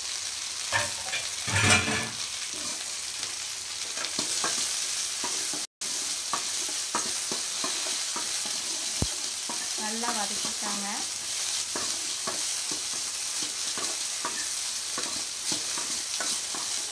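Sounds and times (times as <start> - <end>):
okra sizzling in hot oil: 0.0 - 16.9
metallic scrape off steel plate: 0.7 - 2.8
metal spoon scraping a pan: 0.7 - 2.9, 3.8 - 10.8, 11.4 - 16.9.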